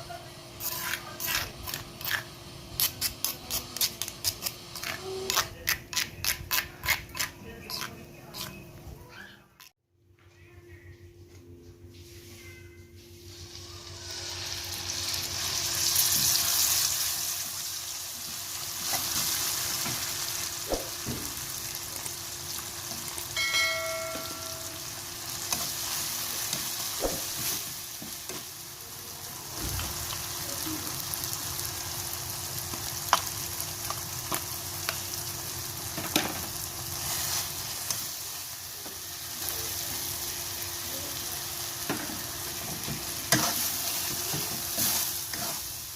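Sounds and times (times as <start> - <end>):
food sizzling in hot oil: 13.2 - 45.9.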